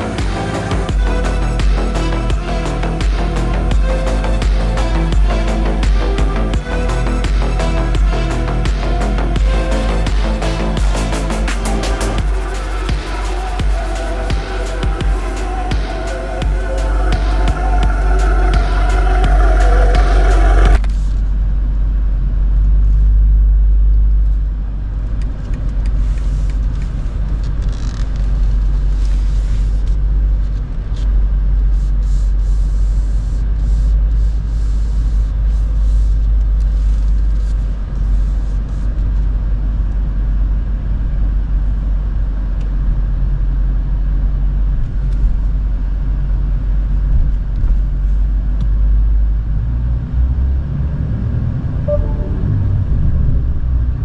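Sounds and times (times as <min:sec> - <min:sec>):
car engine cruising: 0:00.0 - 0:21.0
road noise: 0:00.0 - 0:21.4, 0:49.6 - 0:54.0.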